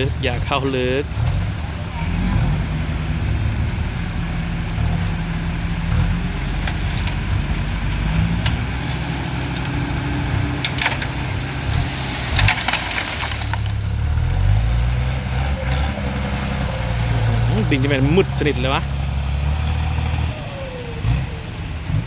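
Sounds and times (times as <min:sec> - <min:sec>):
tractor diesel engine working: 0:00.0 - 0:22.0
roots cracking and snapping: 0:05.9 - 0:18.7.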